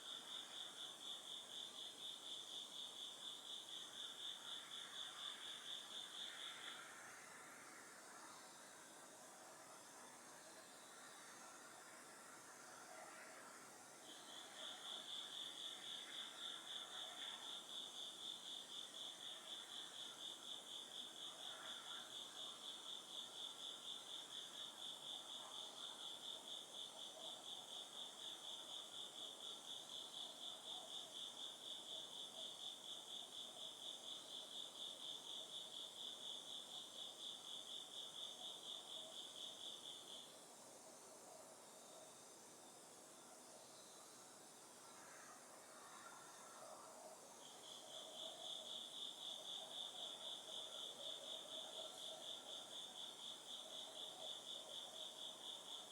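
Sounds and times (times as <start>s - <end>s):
fainter lower insect calls: 14.0s - 55.9s.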